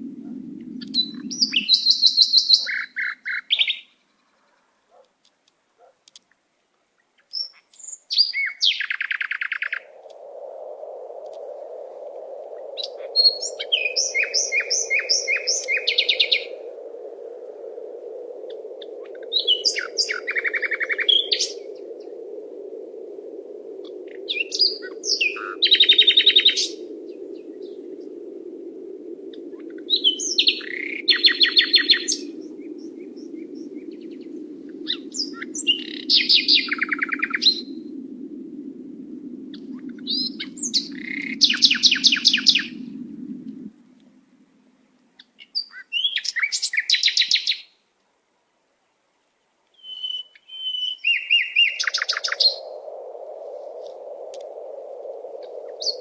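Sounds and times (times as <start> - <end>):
songbird trilling: 0.8 - 4.0, 7.2 - 9.9, 12.8 - 16.6, 19.0 - 21.7, 24.1 - 26.8, 29.6 - 34.2, 34.8 - 37.7, 49.8 - 52.6
low rushing background: 9.8 - 45.1.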